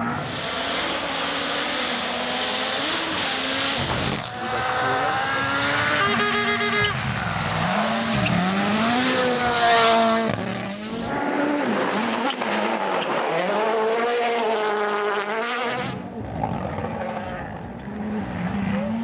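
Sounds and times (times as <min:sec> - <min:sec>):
rally car engines at full speed: 0:00.0 - 0:19.0.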